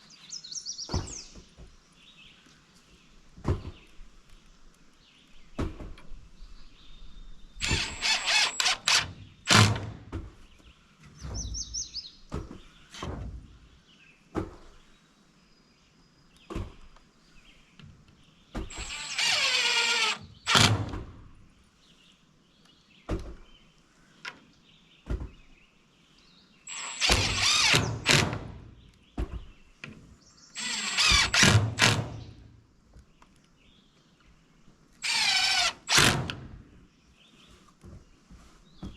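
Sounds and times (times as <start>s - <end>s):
cordless drill driving screws: 7.6s - 10.0s, 18.7s - 21.0s, 26.7s - 28.6s, 30.6s - 32.4s, 35.0s - 36.4s.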